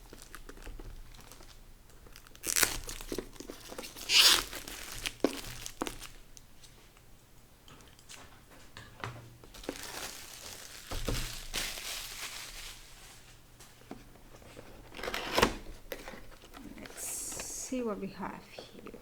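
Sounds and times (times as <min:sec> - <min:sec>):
packaging crinkling and tearing: 0:00.0 - 0:06.3, 0:09.5 - 0:13.3, 0:14.6 - 0:17.0.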